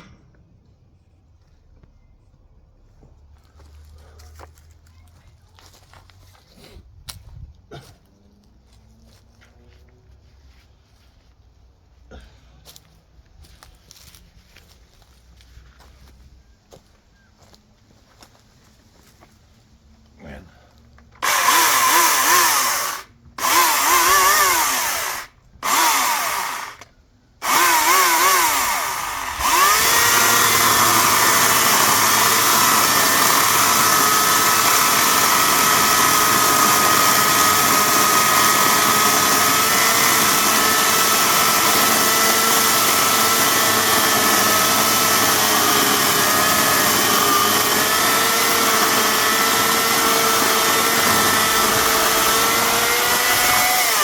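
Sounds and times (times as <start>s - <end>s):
electric chainsaw running: 21.2s - 54.0s.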